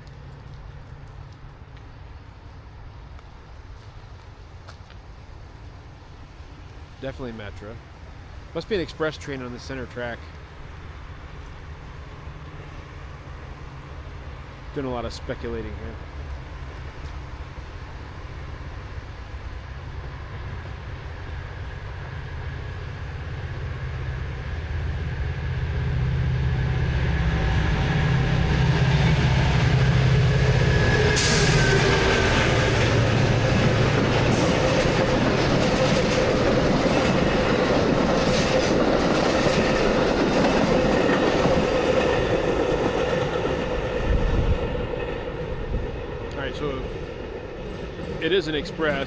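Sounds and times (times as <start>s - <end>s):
locomotive drone: 0.0s - 49.0s
train wheels rushing: 14.9s - 49.0s.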